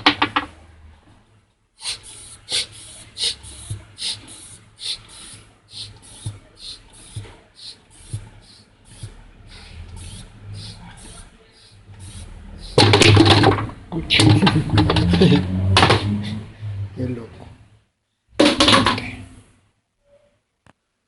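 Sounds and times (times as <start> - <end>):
rhythmic scraping strokes: 1.9 - 17.2.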